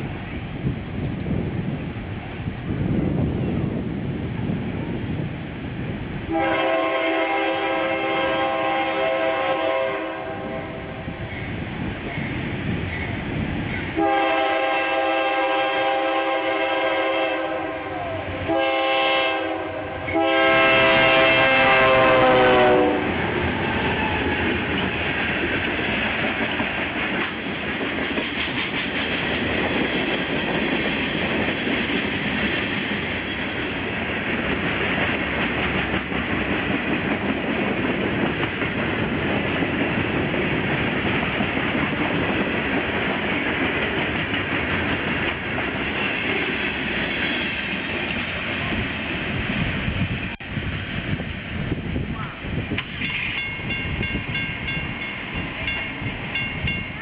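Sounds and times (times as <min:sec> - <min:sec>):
locomotive air horn blasts: 0:06.3 - 0:11.0, 0:14.0 - 0:23.2
train wheels clacking on rails: 0:20.0 - 0:49.3, 0:52.7 - 0:57.0.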